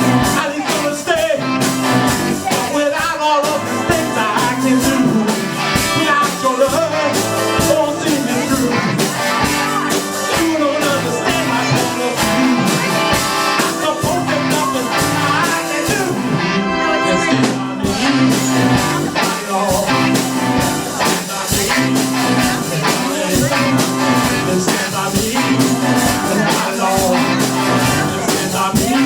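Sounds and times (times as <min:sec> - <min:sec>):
live rock band playing: 0:00.0 - 0:29.0
person singing: 0:00.0 - 0:29.0.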